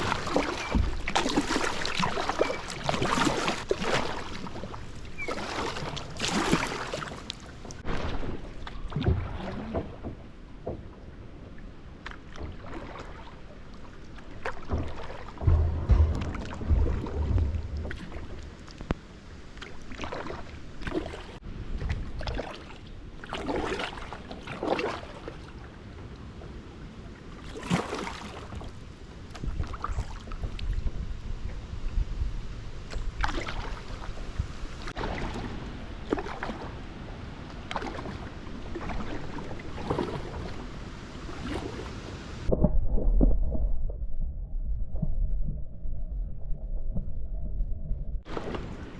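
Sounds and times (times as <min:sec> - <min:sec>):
kayak paddle splashing: 0:00.0 - 0:26.5, 0:27.2 - 0:31.2, 0:32.8 - 0:43.6, 0:48.2 - 0:48.9
wind rumble on microphone: 0:14.8 - 0:22.5, 0:28.6 - 0:48.9
loud low thudding rumble: 0:15.3 - 0:19.5.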